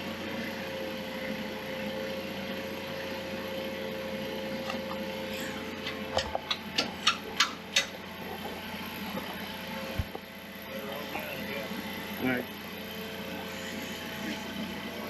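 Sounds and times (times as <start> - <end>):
steady background hum: 4.5 - 15.0.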